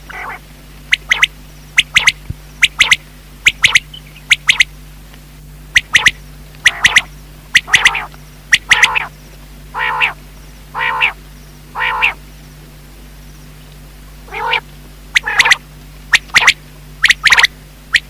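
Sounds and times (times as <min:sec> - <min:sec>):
quail nasal single calls: 0:00.1 - 0:04.7, 0:05.7 - 0:09.1, 0:09.7 - 0:12.2, 0:14.2 - 0:18.0
quail three-note calls: 0:00.1 - 0:04.7, 0:05.7 - 0:09.1, 0:09.7 - 0:12.2, 0:14.3 - 0:18.0.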